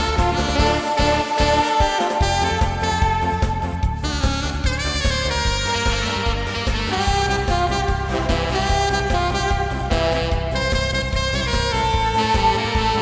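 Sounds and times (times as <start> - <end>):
alto saxophone melody: 0.0 - 13.0
backing track with bass beat: 0.0 - 13.0.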